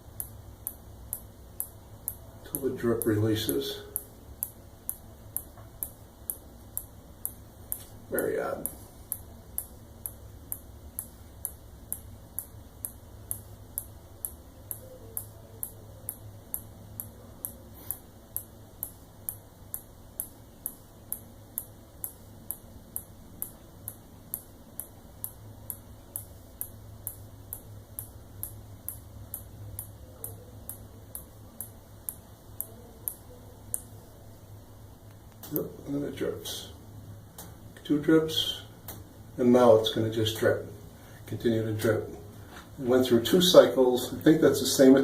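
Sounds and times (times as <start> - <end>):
faint ticking from shower head: 0.0 - 34.0.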